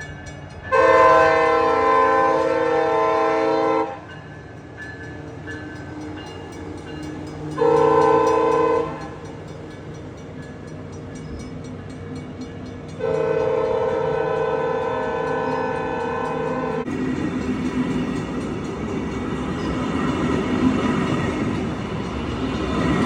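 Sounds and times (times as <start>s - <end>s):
train rumble with clicking: 0.0s - 23.0s
train air horn blasts: 0.7s - 4.1s, 7.5s - 9.2s, 13.0s - 16.9s.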